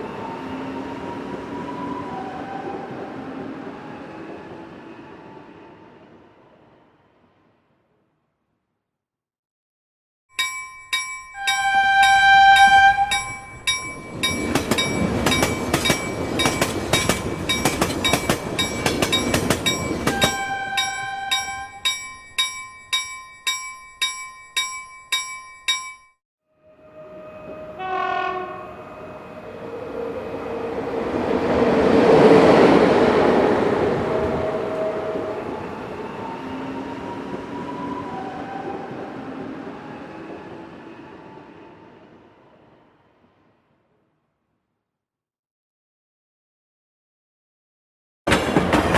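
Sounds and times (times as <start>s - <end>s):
train passing by: 0.0s - 8.0s, 10.4s - 23.2s, 26.6s - 43.9s, 48.3s - 48.9s
bell ringing rapidly: 10.4s - 26.1s
train horn: 11.4s - 13.5s, 20.0s - 21.8s, 26.5s - 30.8s.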